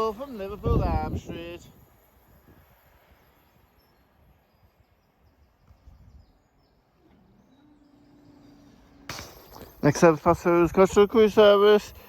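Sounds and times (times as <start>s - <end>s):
faint bird chirps: 1.7s - 9.1s
faint low gliding tone: 5.8s - 9.3s.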